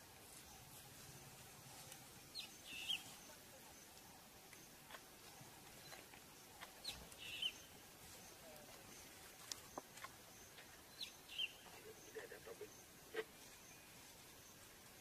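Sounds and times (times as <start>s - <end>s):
faint outdoor ambience: 0.0s - 15.0s
wild bird calling: 2.3s - 3.1s, 5.3s - 7.8s, 9.6s - 13.9s.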